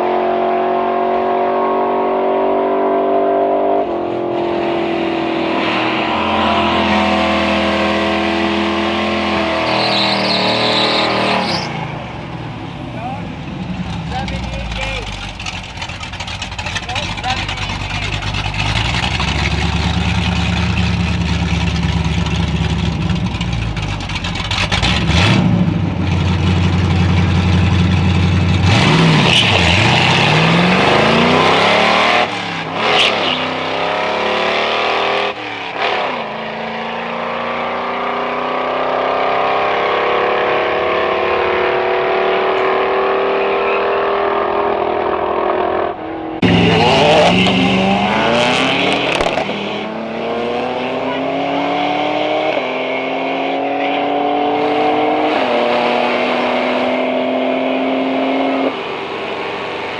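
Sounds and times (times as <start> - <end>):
drag racing car engine accelerating: 0.0 - 59.9.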